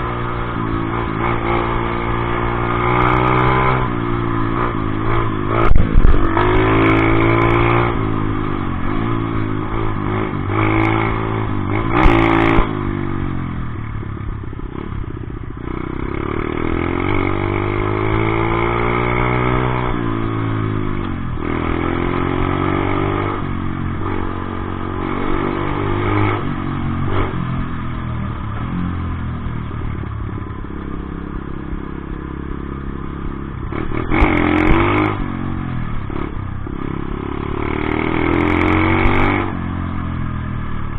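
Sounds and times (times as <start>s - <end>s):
dirt bike engine revving: 0.0s - 12.8s, 33.6s - 39.6s.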